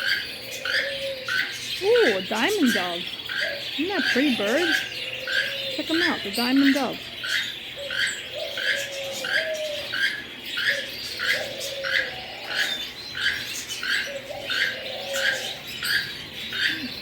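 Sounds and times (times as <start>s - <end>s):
bird cooing: 0.0s - 17.0s
sharp bird calls: 0.0s - 17.0s.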